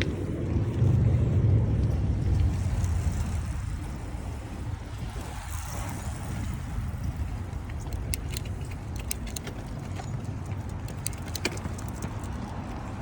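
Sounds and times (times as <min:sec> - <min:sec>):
wind and road noise: 0:00.0 - 0:13.0
sharp irregular clicks: 0:07.7 - 0:12.6.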